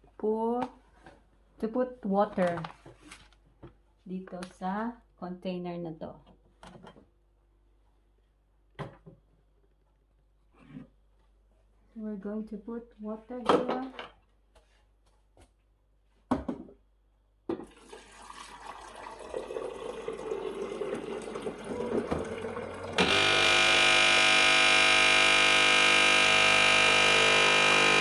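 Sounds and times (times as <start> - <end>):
water pouring into a tank: 17.6 - 23.9
coffee machine pump buzzing: 20.5 - 28.0.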